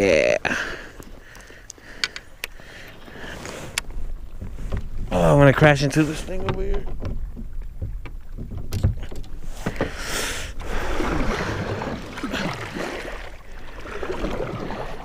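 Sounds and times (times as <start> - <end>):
water splashing from paddle strokes: 9.3 - 15.0.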